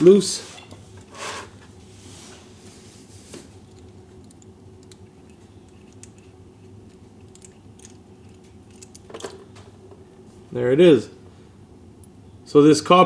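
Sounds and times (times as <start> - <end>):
low steady hum: 0.0 - 13.0
light metal clicks: 3.7 - 9.4.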